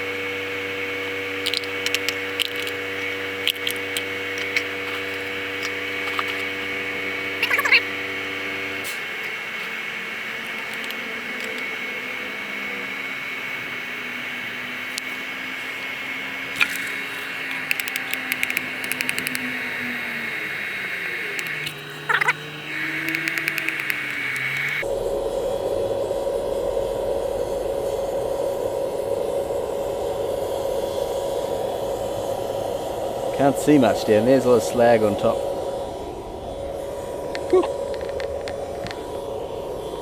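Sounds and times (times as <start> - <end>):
electric blower rushing air: 0.0 - 24.9
faint motor whine: 0.0 - 40.0
sharp clicks: 1.4 - 6.7, 9.2 - 11.8, 16.5 - 24.8.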